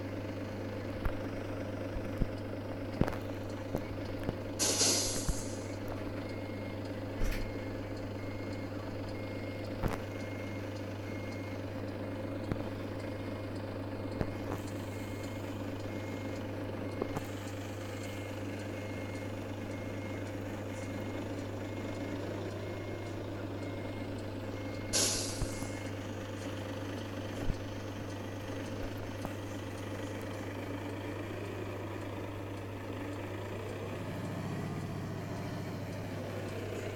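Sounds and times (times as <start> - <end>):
truck engine running: 0.0 - 36.9
air hiss: 4.6 - 5.5, 25.0 - 25.5
reversing alarm beeps: 4.7 - 11.7, 14.8 - 17.2, 17.9 - 26.0.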